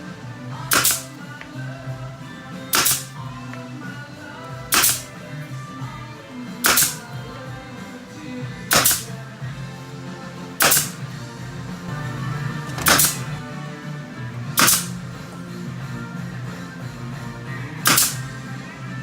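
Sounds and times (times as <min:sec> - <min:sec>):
music playing: 0:00.0 - 0:19.0
sharp loud bangs: 0:00.7 - 0:01.2, 0:02.7 - 0:03.2, 0:04.7 - 0:05.2, 0:06.6 - 0:07.1, 0:08.7 - 0:09.2, 0:10.6 - 0:11.1, 0:12.7 - 0:13.4, 0:14.6 - 0:15.0, 0:17.8 - 0:18.3.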